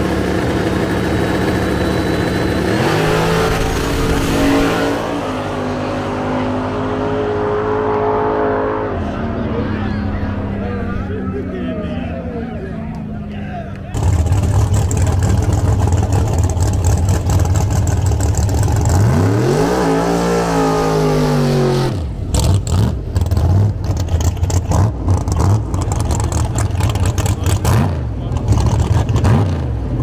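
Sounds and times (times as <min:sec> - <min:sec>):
choppy engine rumble: 0:00.0 - 0:06.8, 0:08.6 - 0:19.2, 0:22.0 - 0:30.0
drag racing engines running: 0:00.0 - 0:30.0
engine revving with rising pitch: 0:01.4 - 0:12.4, 0:17.3 - 0:24.0.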